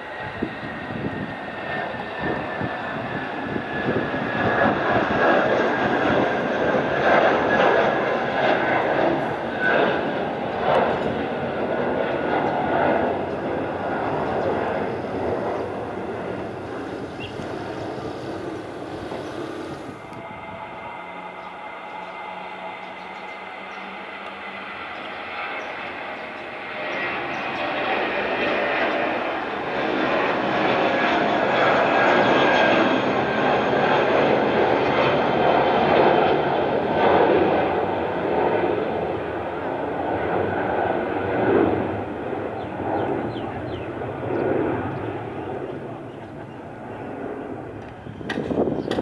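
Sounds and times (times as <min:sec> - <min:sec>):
jet engines roaring on takeoff: 0:00.0 - 0:49.0
steady low hum: 0:05.9 - 0:24.1
thin high whine: 0:12.5 - 0:24.2.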